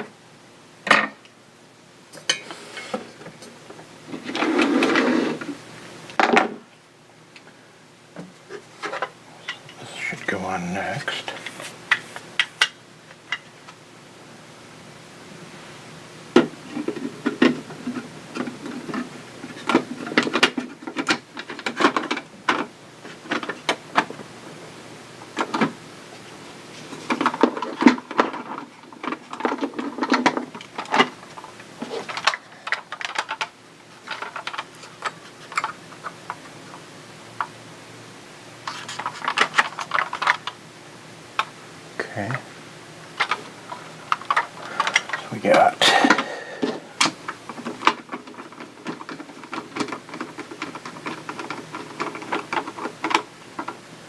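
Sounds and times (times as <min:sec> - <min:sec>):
plastic toy parts clicking and rattling: 0:27.0 - 0:36.4, 0:38.6 - 0:40.6, 0:43.2 - 0:45.2, 0:46.1 - 0:53.8.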